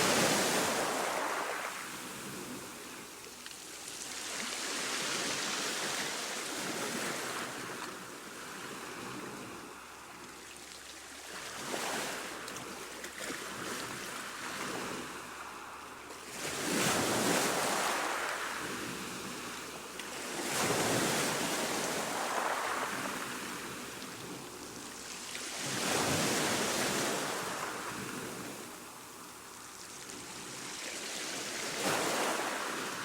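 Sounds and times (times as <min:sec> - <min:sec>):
ocean waves breaking: 0:00.0 - 0:03.0, 0:11.2 - 0:29.0.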